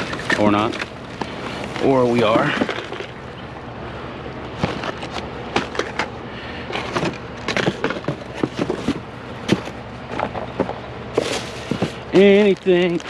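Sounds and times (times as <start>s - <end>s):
toy cars clattering in a box: 0.0s - 0.9s, 1.8s - 3.2s, 6.7s - 13.0s.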